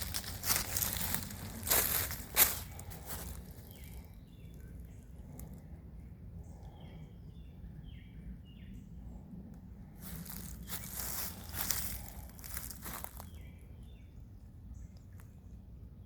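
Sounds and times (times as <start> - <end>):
crunching footsteps: 0.0 - 4.1, 10.0 - 13.4
bird chirping: 0.0 - 9.1
low outdoor rumble: 0.0 - 16.0.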